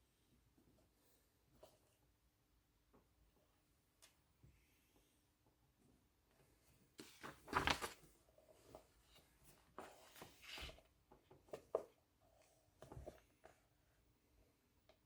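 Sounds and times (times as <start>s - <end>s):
paper rustling: 7.0s - 8.1s.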